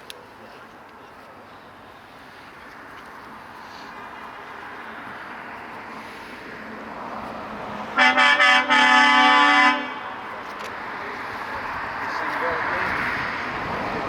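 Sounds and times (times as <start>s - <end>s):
truck engines running: 0.0s - 9.2s, 9.8s - 14.0s
truck air horn: 7.9s - 10.3s.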